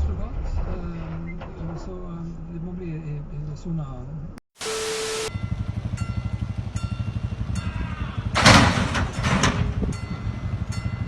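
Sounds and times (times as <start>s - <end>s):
loud rushing hiss: 4.6s - 5.6s
vehicle engine running: 4.6s - 11.0s.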